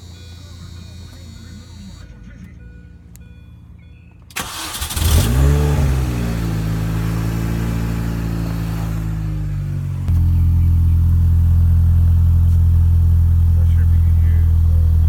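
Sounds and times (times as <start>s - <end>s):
car engine revving and idling: 0.0s - 15.0s.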